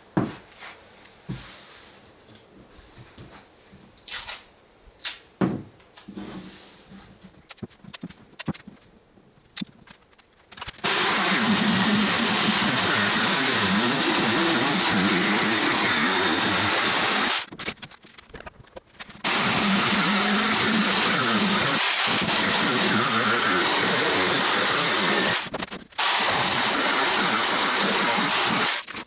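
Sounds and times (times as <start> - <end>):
electric power tool running: 10.8 - 17.5, 19.2 - 28.9.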